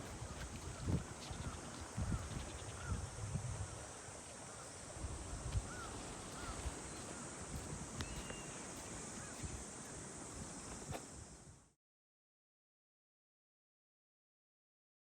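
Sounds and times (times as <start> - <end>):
wind buffeting microphone: 0.0 - 4.2, 4.8 - 11.0
steady hiss: 0.0 - 11.8
birds chirping: 8.0 - 10.0.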